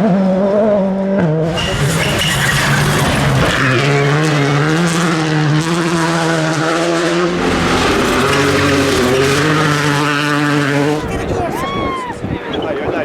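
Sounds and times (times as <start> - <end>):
rally car engine revving: 0.0 - 11.8
tyres on gravel: 1.5 - 6.3, 7.3 - 11.3.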